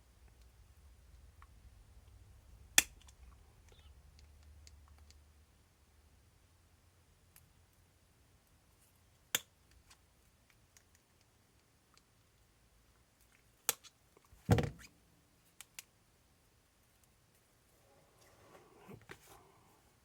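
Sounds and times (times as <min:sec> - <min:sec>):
heavy knock on workbench: 0:14.5 - 0:14.8.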